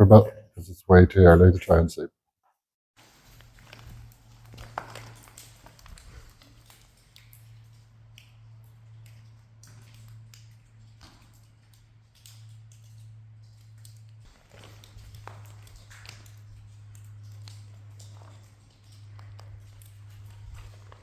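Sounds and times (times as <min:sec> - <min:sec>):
footsteps crunching: 0:03.0 - 0:06.6.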